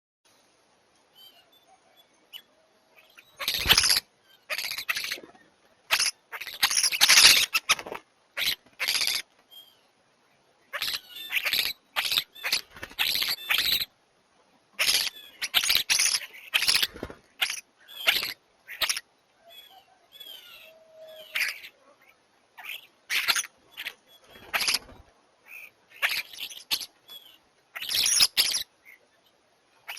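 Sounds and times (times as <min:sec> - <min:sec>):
starlings calling: 0:01.2 - 0:09.8, 0:10.7 - 0:13.9, 0:14.8 - 0:29.1
wing flapping and scuffling: 0:16.7 - 0:17.4.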